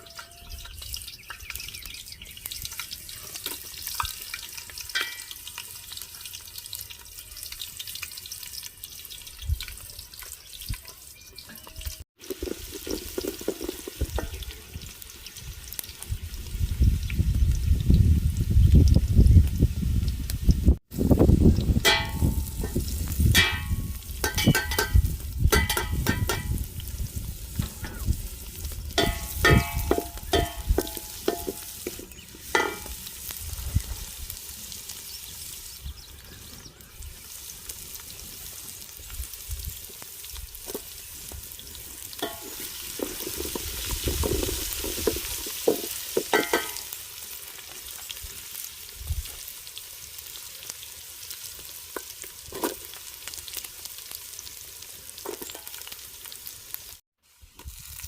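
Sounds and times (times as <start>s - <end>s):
food sizzling in oil: 0.0s - 58.0s
metal utensil scraping pot: 21.8s - 26.7s, 29.0s - 33.1s, 42.2s - 47.0s.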